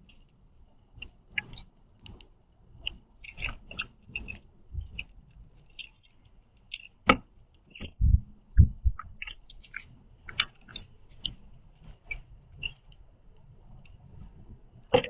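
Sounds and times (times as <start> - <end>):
bird cracking seeds: 2.8 - 8.0, 9.0 - 13.0.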